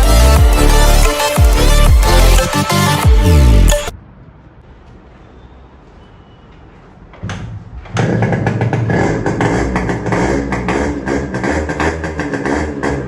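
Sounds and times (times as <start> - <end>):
two-stroke motorcycle engine running: 8.0 - 13.0.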